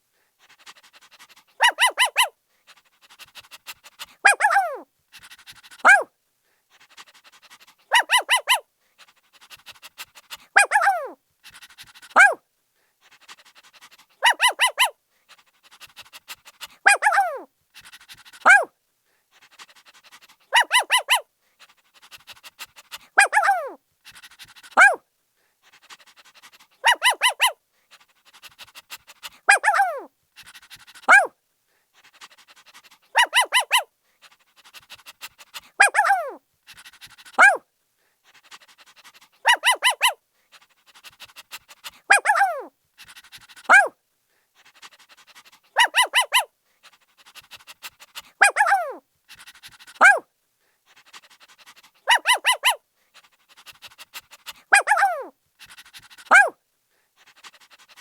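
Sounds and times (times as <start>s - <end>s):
puppy panting: 0.0s - 6.1s, 6.7s - 12.4s, 13.0s - 18.7s, 19.3s - 58.0s
puppy yapping: 1.6s - 2.3s, 4.2s - 4.8s, 5.8s - 6.1s, 7.9s - 8.6s, 10.6s - 11.2s, 12.2s - 12.4s, 14.2s - 14.9s, 16.8s - 17.5s, 18.4s - 18.7s, 20.5s - 21.2s, 23.2s - 23.8s, 24.8s - 25.0s, 26.8s - 27.6s, 29.5s - 30.1s, 31.0s - 31.3s, 33.1s - 33.9s, 35.8s - 36.4s, 37.4s - 37.6s, 39.4s - 40.2s, 42.1s - 42.7s, 43.7s - 43.9s, 45.8s - 46.5s, 48.4s - 49.0s, 50.0s - 50.2s, 52.0s - 52.8s, 54.7s - 55.3s, 56.3s - 56.6s
puppy yelp: 1.6s - 2.3s, 4.0s - 6.1s, 7.5s - 8.6s, 10.6s - 11.2s, 12.1s - 12.4s, 14.2s - 14.9s, 16.8s - 17.5s, 18.4s - 18.7s, 20.5s - 21.2s, 23.0s - 25.0s, 25.8s - 27.6s, 29.2s - 31.3s, 32.4s - 33.9s, 35.8s - 37.6s, 38.5s - 40.2s, 42.0s - 43.9s, 44.8s - 46.5s, 48.2s - 50.3s, 51.2s - 52.8s, 54.7s - 56.6s.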